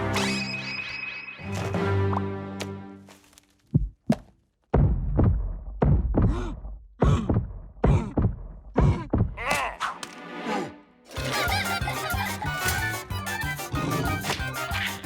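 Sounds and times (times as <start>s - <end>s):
cartoon music: 10.4s - 15.0s.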